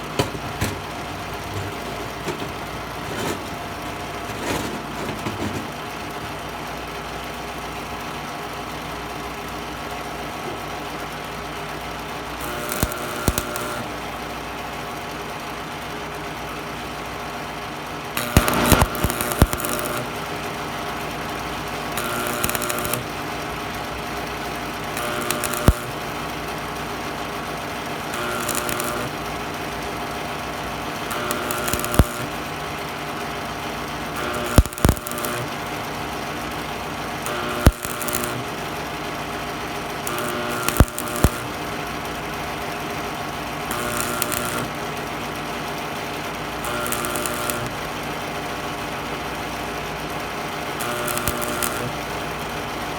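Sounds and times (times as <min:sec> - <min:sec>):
welder humming: 0:00.0 - 0:06.4, 0:12.4 - 0:14.1, 0:18.2 - 0:32.8, 0:33.6 - 0:45.1, 0:46.1 - 0:48.0, 0:50.6 - 0:52.9
electric arc crackle: 0:12.4 - 0:14.0, 0:18.2 - 0:20.4, 0:21.8 - 0:24.0, 0:24.7 - 0:26.3, 0:27.9 - 0:29.4, 0:31.0 - 0:32.6, 0:34.1 - 0:35.7, 0:37.2 - 0:38.6, 0:39.9 - 0:41.9, 0:43.6 - 0:44.9, 0:46.5 - 0:48.0, 0:50.7 - 0:52.8.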